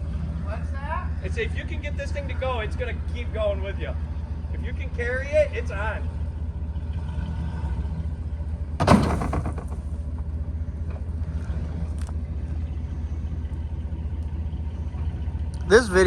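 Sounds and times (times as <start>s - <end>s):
vehicle rumbling from inside cab: 0.0s - 16.0s
sharp thump: 8.8s - 10.3s.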